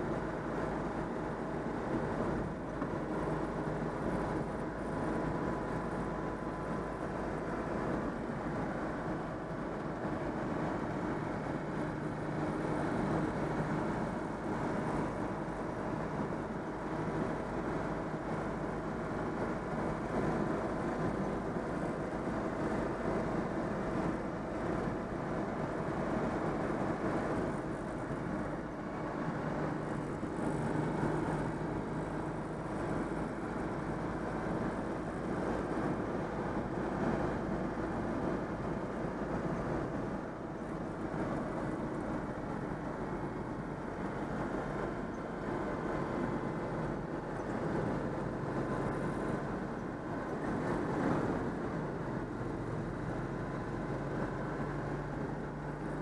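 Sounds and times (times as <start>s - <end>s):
flat-twin car engine running: 0.0s - 56.0s
road noise: 0.0s - 56.0s.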